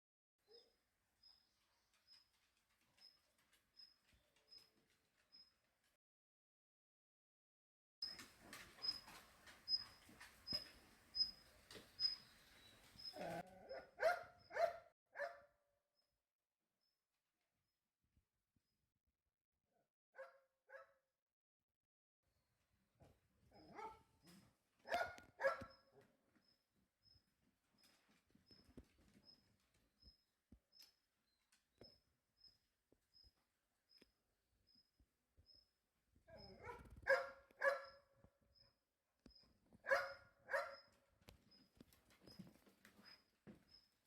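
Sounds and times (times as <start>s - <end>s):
dog barking: 13.2s - 15.6s, 20.2s - 21.0s, 23.6s - 24.1s, 24.8s - 26.0s, 36.3s - 38.0s, 39.8s - 40.9s.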